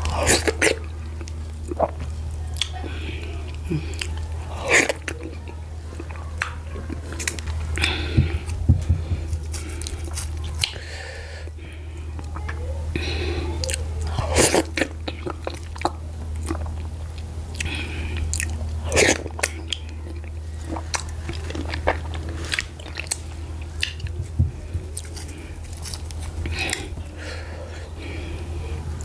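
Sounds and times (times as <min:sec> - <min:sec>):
person chewing food: 0:00.0 - 0:29.0
steady low hum: 0:00.0 - 0:29.0
wet mouth smacks: 0:23.8 - 0:24.1.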